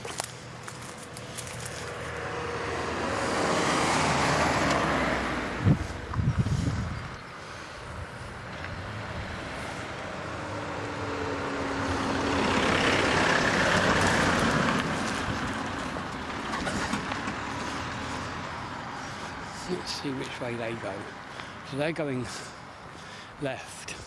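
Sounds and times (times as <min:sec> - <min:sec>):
vehicle driving past: 0:01.2 - 0:19.6.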